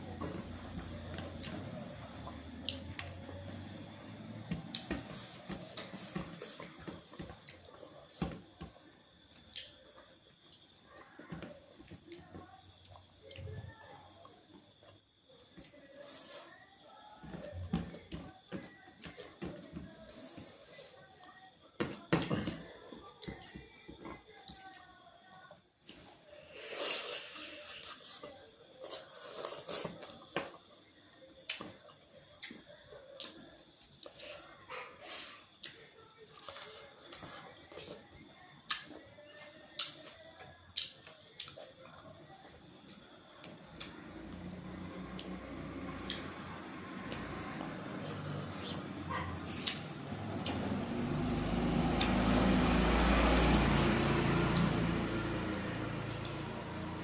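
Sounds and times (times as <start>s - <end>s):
passing vehicle rumble: 44.0s - 57.0s.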